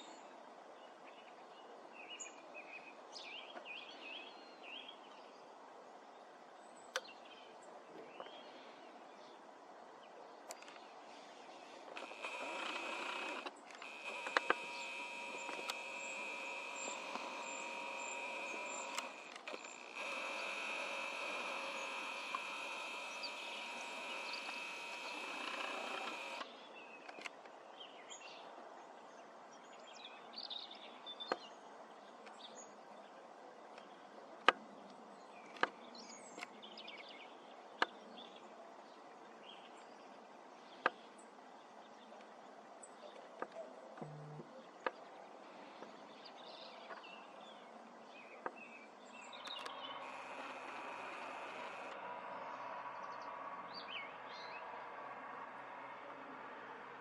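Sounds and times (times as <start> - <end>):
small birds chirping: 10.4 - 28.5, 33.7 - 54.8
sharp clicks: 11.9 - 26.5, 49.4 - 52.0
mechanical whine with tones: 12.0 - 26.5, 49.3 - 52.3.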